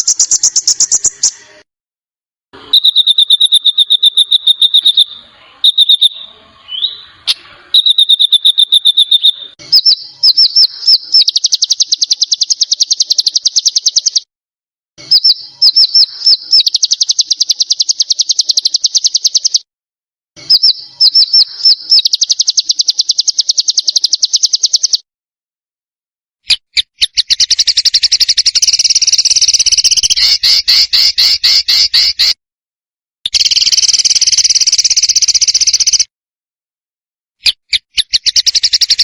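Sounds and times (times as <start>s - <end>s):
songbird rattling trill: 0.0s - 1.4s, 2.7s - 7.1s, 7.8s - 14.3s, 15.0s - 19.6s, 20.4s - 25.0s, 26.7s - 32.4s, 33.3s - 36.1s, 37.5s - 39.0s.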